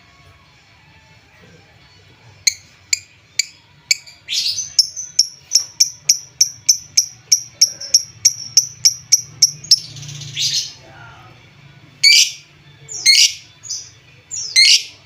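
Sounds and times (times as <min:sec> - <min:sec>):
bird chirping: 0:02.5 - 0:10.8, 0:12.0 - 0:15.0.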